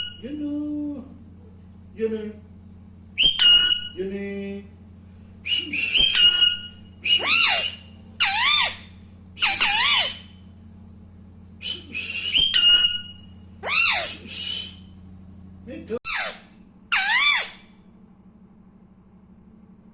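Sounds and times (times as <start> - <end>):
parrot whistly calls: 0.0 - 0.3, 3.2 - 4.1, 5.4 - 10.4, 11.6 - 15.0, 16.0 - 17.7.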